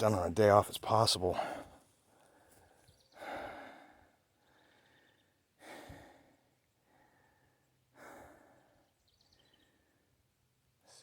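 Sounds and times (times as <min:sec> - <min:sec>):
person breathing: 0:01.4 - 0:08.9.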